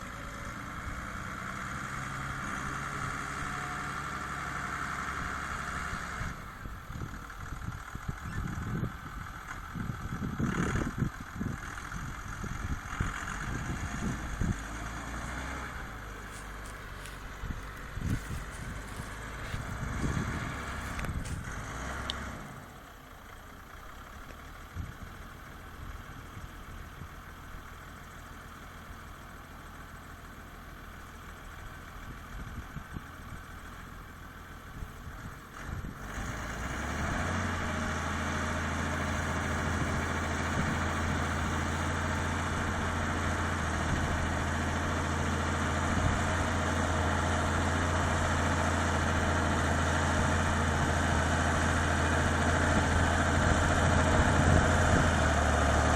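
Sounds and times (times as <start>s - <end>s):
tractor diesel engine running: 0.0s - 55.9s
engine knocks: 6.6s - 22.4s.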